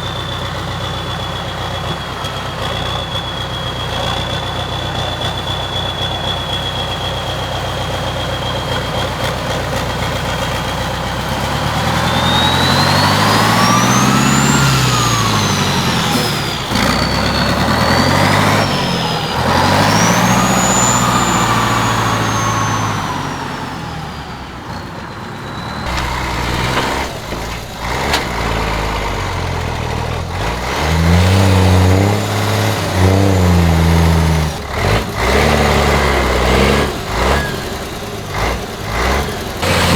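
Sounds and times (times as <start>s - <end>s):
high engine whine: 0.0s - 35.2s
truck diesel engine blipping revs: 0.0s - 39.9s
truck diesel engine revving: 0.0s - 39.9s.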